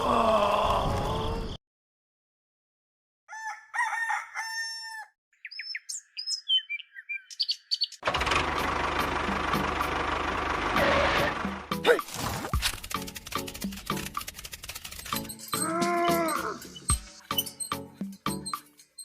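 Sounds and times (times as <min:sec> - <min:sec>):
rooster crowing: 0:03.3 - 0:05.2
small birds chirping: 0:05.3 - 0:08.0.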